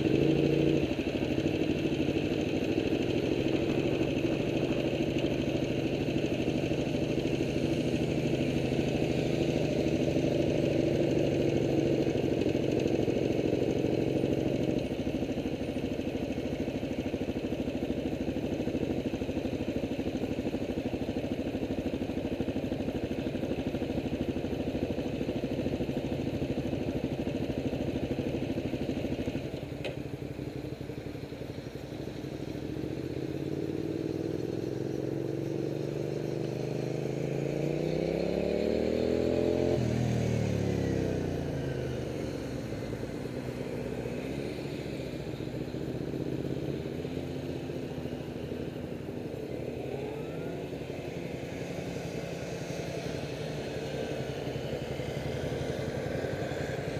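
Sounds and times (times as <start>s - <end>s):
vehicle engine revving: 33.6s - 42.4s.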